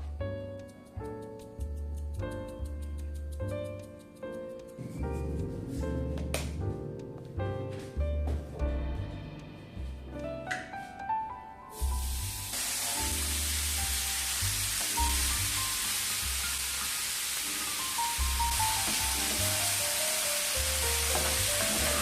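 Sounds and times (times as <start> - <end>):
soft melodic background music: 0.0 - 22.0
food sizzling in a pan: 11.7 - 22.0.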